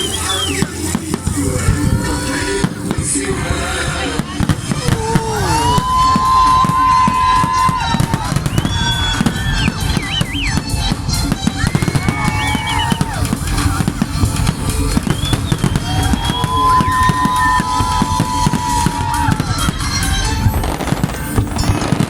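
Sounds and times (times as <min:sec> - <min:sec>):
fireworks bangs and crackles: 0:00.0 - 0:22.0
music playing: 0:00.0 - 0:22.0.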